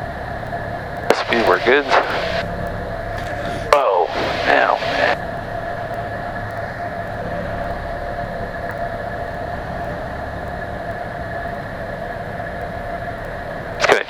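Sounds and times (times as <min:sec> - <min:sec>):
aircraft engine and propeller drone: 0:00.0 - 0:14.0
constant whine: 0:00.0 - 0:14.0
rushing air: 0:00.5 - 0:13.9.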